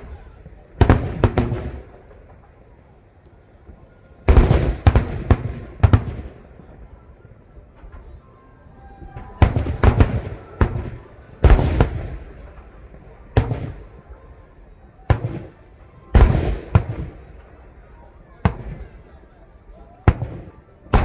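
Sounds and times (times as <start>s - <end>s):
firework shells bursting: 20.1s - 21.0s.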